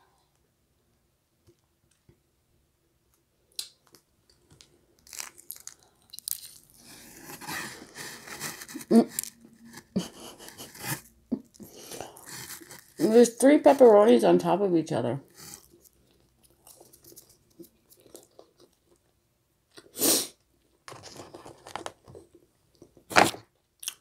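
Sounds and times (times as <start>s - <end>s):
person chewing pizza: 5.0s - 13.0s, 15.3s - 20.0s, 23.7s - 24.0s.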